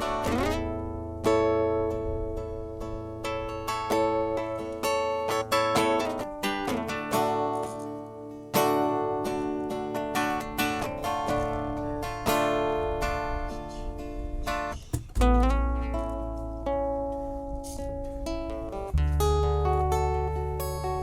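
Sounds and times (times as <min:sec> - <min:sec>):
acoustic guitar picked and strummed: 0:00.0 - 0:21.0
deep bass note: 0:15.0 - 0:17.2, 0:17.9 - 0:21.0.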